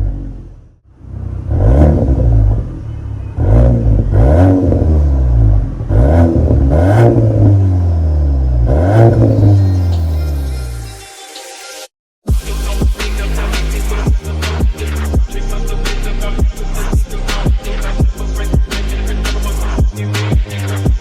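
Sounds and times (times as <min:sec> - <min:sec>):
car engine revving: 0:00.0 - 0:10.4, 0:12.5 - 0:21.0.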